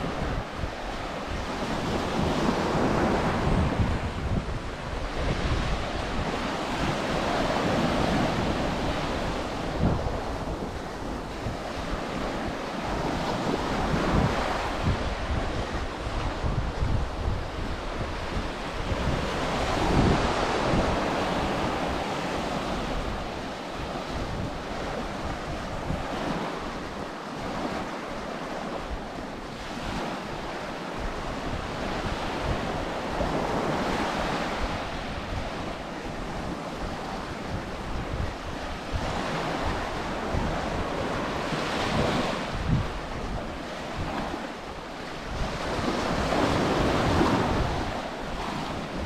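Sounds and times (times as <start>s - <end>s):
wind buffeting microphone: 0.0s - 49.0s
surf breaking on beach: 29.6s - 49.0s.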